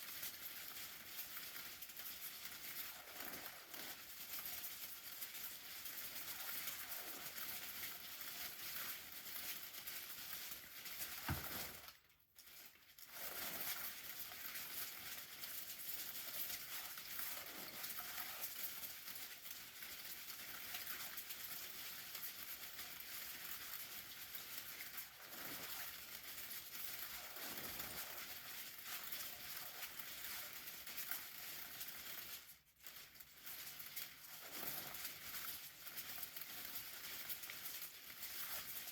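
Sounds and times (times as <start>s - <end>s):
rain pattering on umbrella: 0.1s - 12.0s.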